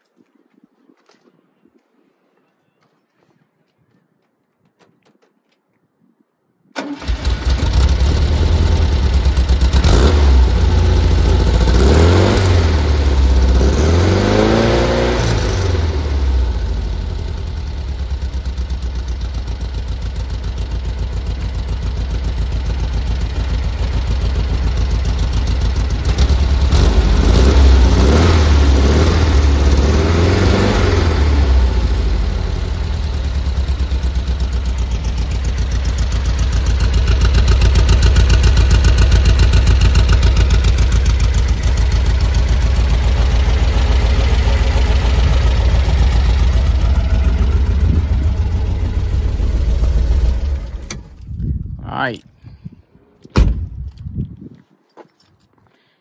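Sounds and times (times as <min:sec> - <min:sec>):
car engine idling and revving: 0:07.1 - 0:51.4.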